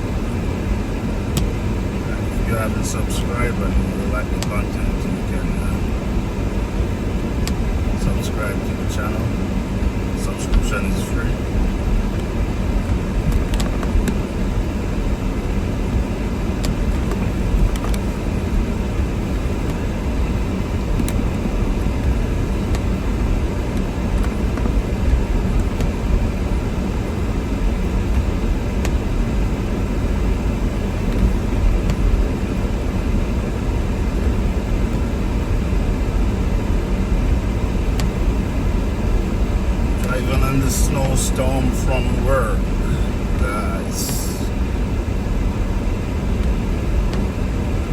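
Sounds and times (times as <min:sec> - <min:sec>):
car road and engine noise: 0:00.0 - 0:47.9.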